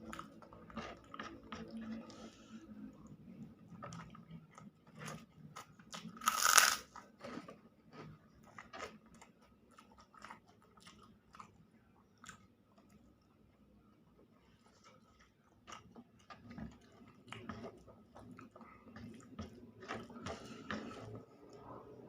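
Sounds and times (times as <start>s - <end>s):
person chewing: 3.8s - 11.6s.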